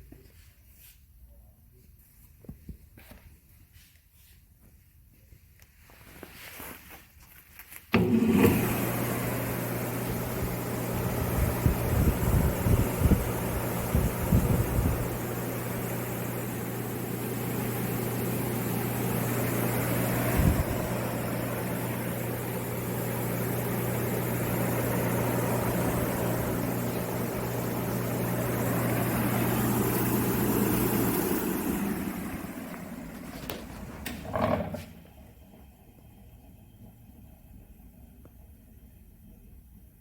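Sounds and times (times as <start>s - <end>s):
spinning sanding drum whooshing: 8.0s - 34.4s
machine winding down: 8.0s - 34.7s
motor humming: 8.0s - 35.0s.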